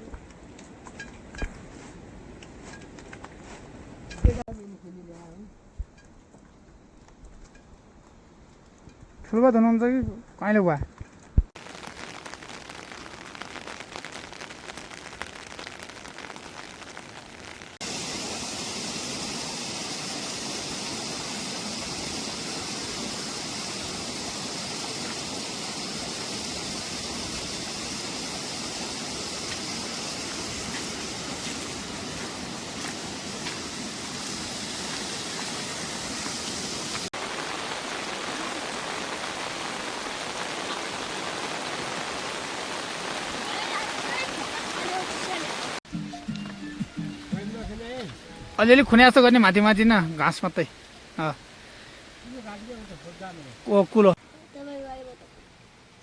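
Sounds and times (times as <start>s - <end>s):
heavy rain: 11.6s - 45.8s, 47.6s - 56.0s.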